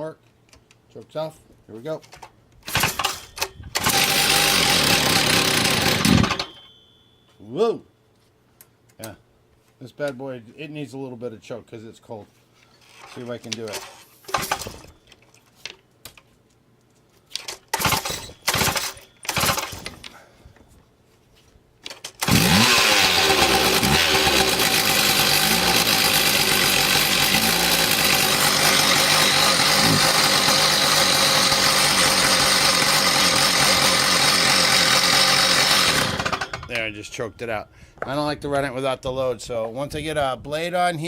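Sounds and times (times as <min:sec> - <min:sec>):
starter cord pulls: 0:02.6 - 0:06.6, 0:17.4 - 0:20.2, 0:21.8 - 0:36.8
two-stroke engine running: 0:03.8 - 0:06.4, 0:22.2 - 0:36.7.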